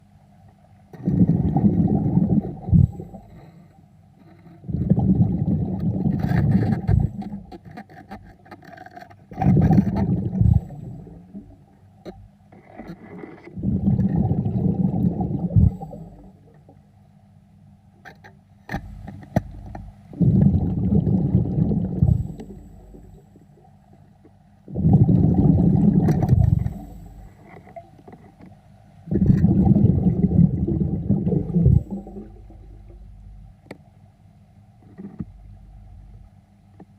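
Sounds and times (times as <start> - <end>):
exhaled bubbles gurgling: 0.9 - 3.5, 4.6 - 7.6, 9.3 - 11.8, 12.7 - 16.8, 19.4 - 23.8, 24.6 - 28.0, 29.0 - 33.5.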